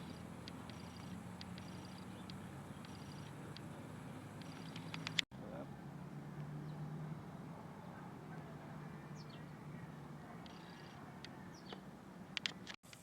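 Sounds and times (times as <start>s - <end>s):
high bird chirps: 0.0s - 5.2s, 10.4s - 11.9s.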